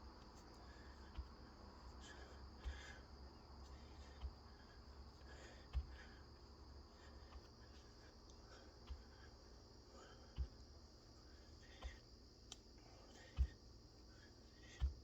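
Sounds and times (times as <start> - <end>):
faint high-pitched hum: 0.0 - 15.0.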